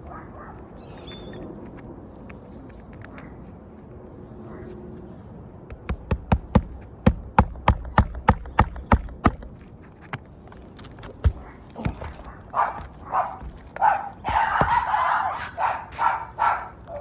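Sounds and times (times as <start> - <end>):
hammer driving nails into shingles: 5.8 - 9.6.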